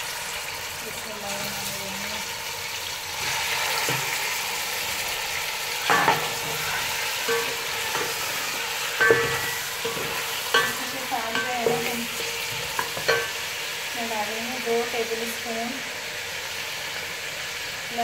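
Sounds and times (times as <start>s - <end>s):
chicken sizzling in hot oil: 0.0s - 18.0s
spatula knocking against pan: 5.9s - 13.4s.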